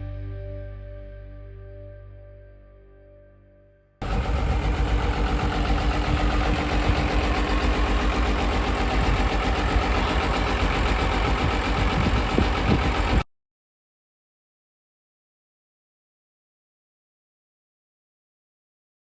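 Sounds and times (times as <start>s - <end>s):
vehicle engine idling: 4.0s - 13.2s.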